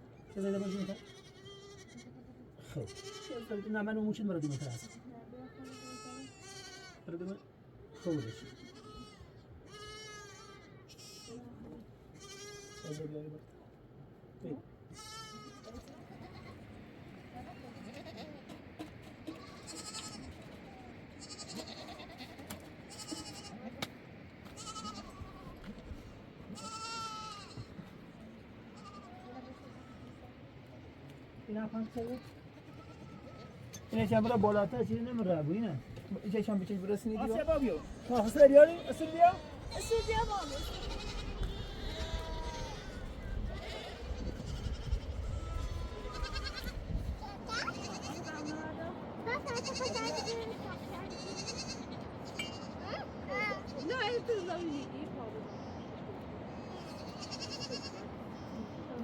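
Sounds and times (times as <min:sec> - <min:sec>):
sheep or goats bleating: 0:00.3 - 0:07.1, 0:07.9 - 0:11.5, 0:12.2 - 0:13.1, 0:14.9 - 0:16.6, 0:19.2 - 0:20.5, 0:21.1 - 0:23.7, 0:24.5 - 0:25.8, 0:26.5 - 0:27.8, 0:28.8 - 0:30.2, 0:31.8 - 0:34.5, 0:37.8 - 0:46.8, 0:49.4 - 0:52.8, 0:56.7 - 0:58.0
flock bleating: 0:22.9 - 0:23.6.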